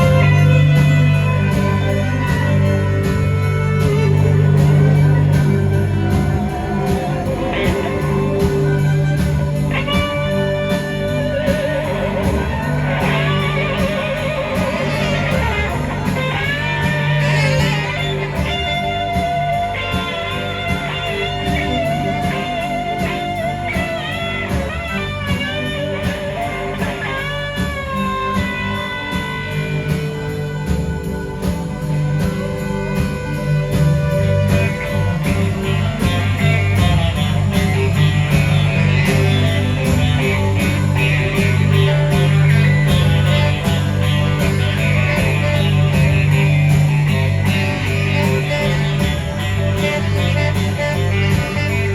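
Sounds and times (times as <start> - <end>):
electric guitar bent notes: 0.0 - 51.9
live blues-rock band: 0.0 - 51.9.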